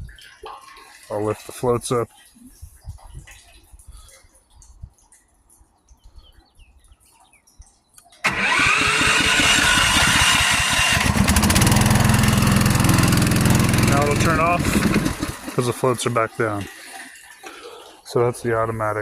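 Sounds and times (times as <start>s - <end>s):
water pump engine running: 8.2s - 17.3s.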